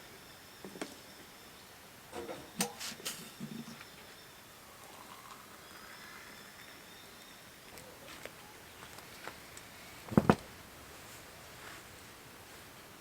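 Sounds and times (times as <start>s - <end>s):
faint high chirps: 0.0s - 9.0s.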